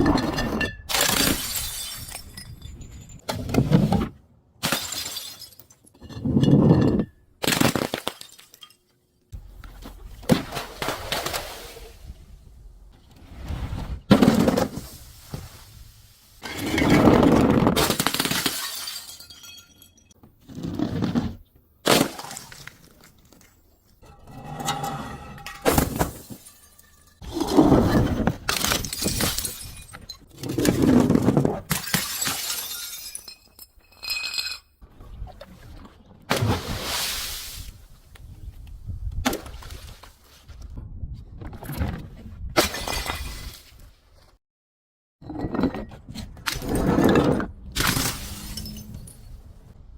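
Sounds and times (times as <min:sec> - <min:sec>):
glass bottles breaking: 0:00.7 - 0:03.3, 0:04.6 - 0:08.9, 0:16.4 - 0:20.2, 0:25.3 - 0:27.2, 0:28.5 - 0:30.4, 0:31.7 - 0:34.6, 0:47.8 - 0:49.4
glass shards clinking: 0:31.8 - 0:34.6.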